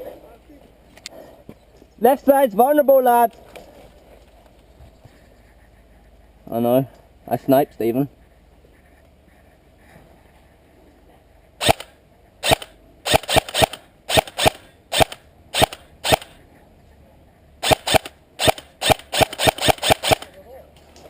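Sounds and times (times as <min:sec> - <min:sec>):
airsoft rifle shots: 0:11.6 - 0:16.4, 0:17.6 - 0:20.4.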